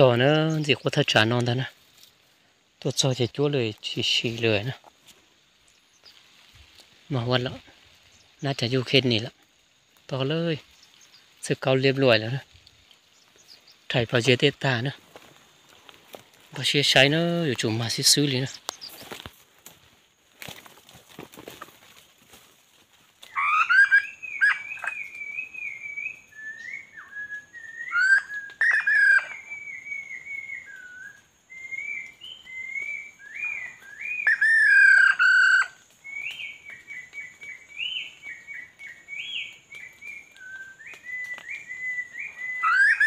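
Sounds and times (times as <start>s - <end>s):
bird singing whistled phrases: 23.3s - 43.0s.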